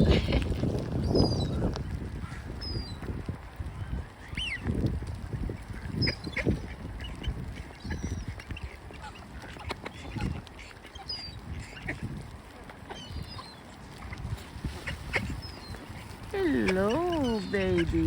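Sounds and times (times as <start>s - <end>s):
wind buffeting microphone: 0.0s - 18.0s
ducks quacking: 5.7s - 18.0s
high bird calls: 5.9s - 12.2s, 12.8s - 18.0s.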